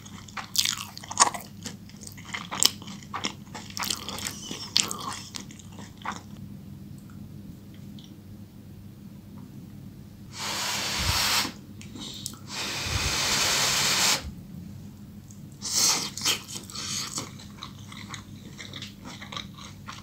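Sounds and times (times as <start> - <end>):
hissing noises: 10.3 - 11.6, 12.4 - 14.4.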